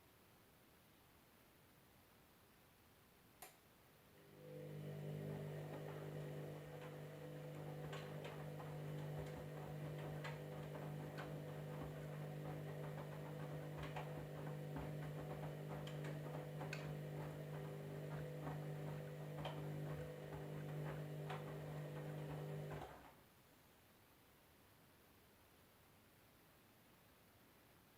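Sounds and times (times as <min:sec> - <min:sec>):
washing machine humming: 0:04.1 - 0:23.2.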